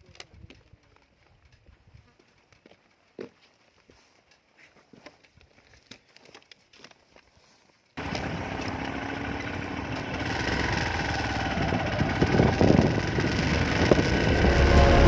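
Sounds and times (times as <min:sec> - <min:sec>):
motorcycle engine running: 0:08.0 - 0:15.0.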